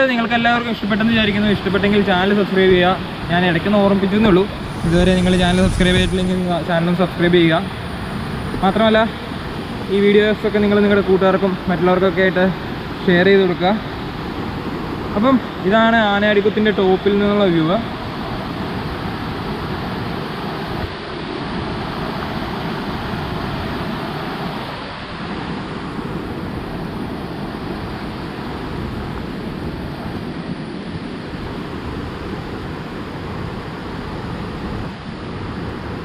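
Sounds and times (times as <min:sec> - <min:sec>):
waterfall rushing: 0:01.3 - 0:08.4.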